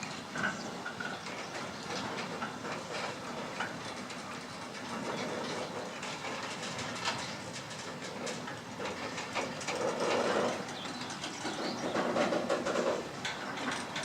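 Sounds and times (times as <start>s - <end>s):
train rolling on track: 0.0s - 14.0s
wheels clacking and knocking: 0.0s - 14.0s.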